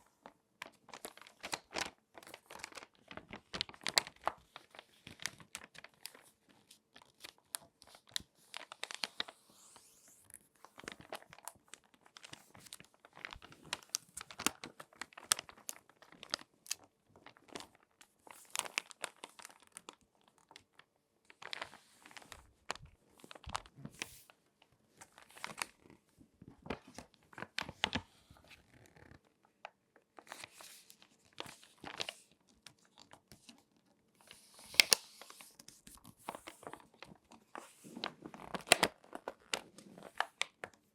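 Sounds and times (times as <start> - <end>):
magazine pages crinkling: 0.2 - 40.9.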